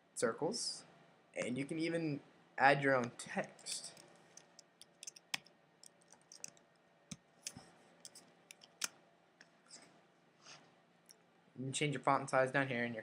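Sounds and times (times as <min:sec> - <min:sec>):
mouse and keyboard clicks: 0:03.0 - 0:08.9.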